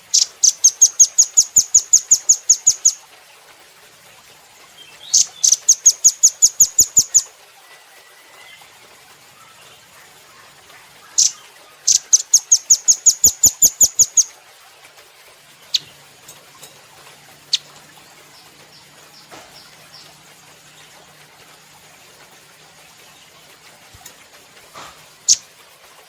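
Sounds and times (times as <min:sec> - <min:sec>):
nuthatch calling: 0:00.0 - 0:03.0, 0:04.8 - 0:07.3, 0:11.0 - 0:14.3, 0:15.6 - 0:16.0, 0:17.4 - 0:21.2, 0:25.2 - 0:25.5.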